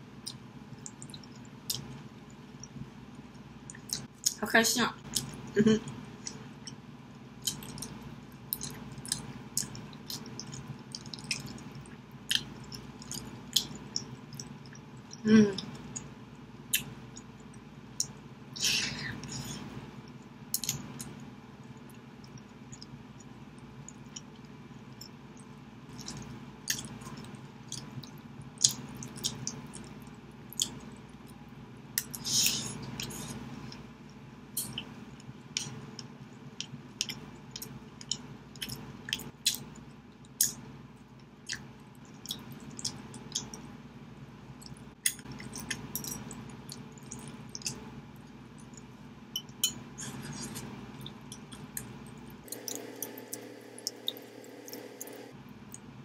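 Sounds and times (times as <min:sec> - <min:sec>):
close-up chewing with wet smacks: 0:00.2 - 0:02.8, 0:03.6 - 0:04.4, 0:07.4 - 0:16.1, 0:21.8 - 0:31.4, 0:32.8 - 0:43.7, 0:44.6 - 0:55.9.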